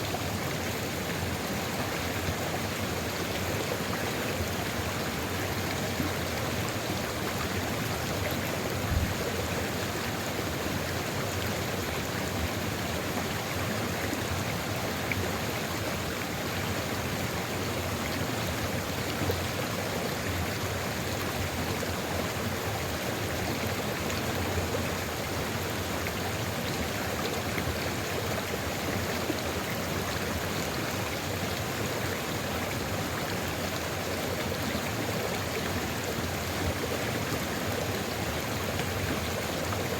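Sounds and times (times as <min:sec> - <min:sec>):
low thump: 0:08.8 - 0:09.2.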